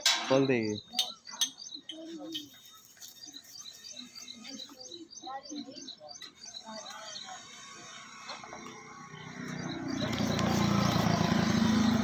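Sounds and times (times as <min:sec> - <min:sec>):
small birds chirping: 0:00.0 - 0:12.0
engine running: 0:07.5 - 0:12.0.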